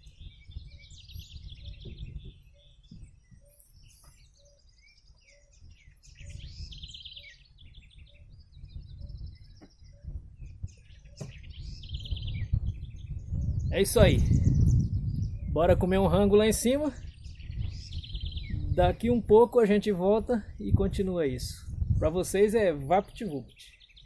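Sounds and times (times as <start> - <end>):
birds chirping and singing: 0.0 - 24.0
low rumble: 10.2 - 22.4.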